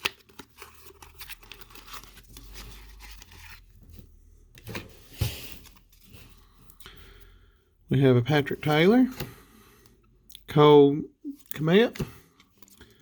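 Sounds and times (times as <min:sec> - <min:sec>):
card wrappers tearing and crinkling: 0:00.0 - 0:03.7
cards rustling and clicking: 0:00.0 - 0:06.9, 0:11.3 - 0:13.0.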